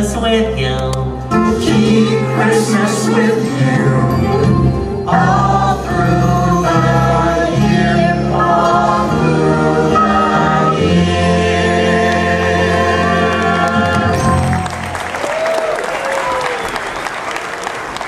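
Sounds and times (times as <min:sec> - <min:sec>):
group singing christmas song: 0:01.4 - 0:14.7.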